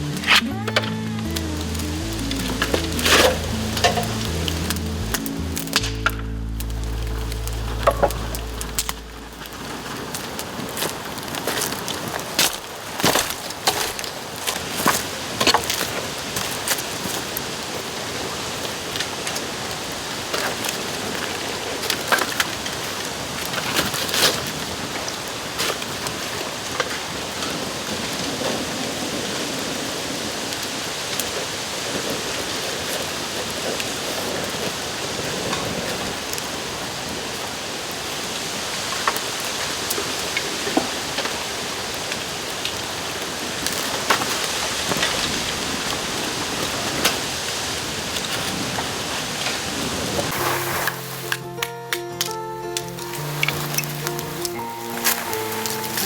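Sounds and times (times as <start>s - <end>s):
bonfire crackling: 0.0s - 56.0s
sharp pops and cracks: 0.1s - 17.8s, 50.2s - 56.0s.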